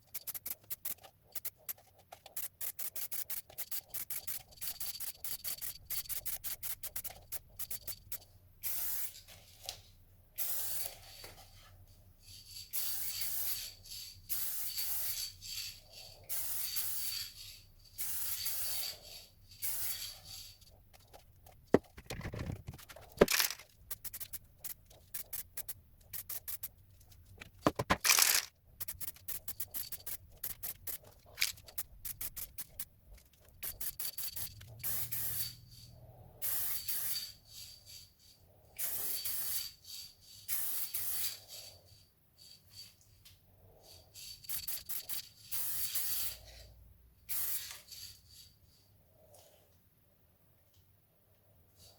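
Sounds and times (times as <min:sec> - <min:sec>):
spray can rattling: 0:00.0 - 0:09.2, 0:12.4 - 0:35.6, 0:38.8 - 0:39.8, 0:44.4 - 0:46.4
spray paint hissing: 0:00.0 - 0:09.3, 0:10.4 - 0:11.3, 0:12.3 - 0:21.9, 0:23.1 - 0:26.8, 0:27.6 - 0:32.9, 0:33.6 - 0:41.8, 0:44.1 - 0:46.5, 0:47.3 - 0:48.6.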